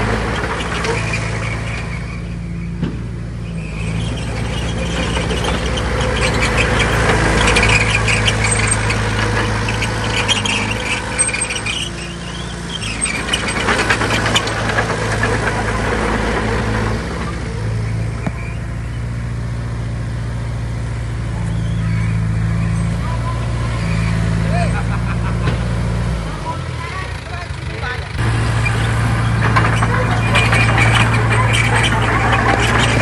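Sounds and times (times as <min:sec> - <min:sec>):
heavy machinery diesel engine: 0:00.0 - 0:33.0
clattering and crunching: 0:04.3 - 0:17.4, 0:28.2 - 0:33.0.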